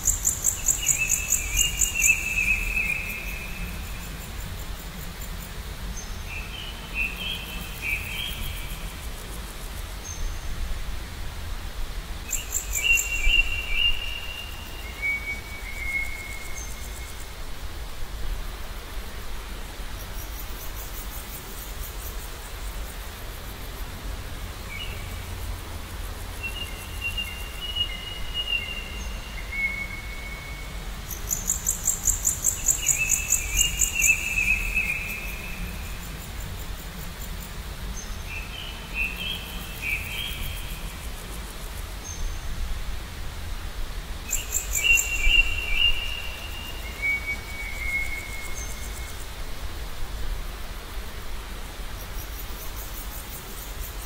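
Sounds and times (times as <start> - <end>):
small songbirds singing: 0.0 - 10.6, 12.3 - 17.4, 24.5 - 42.6, 44.3 - 49.4.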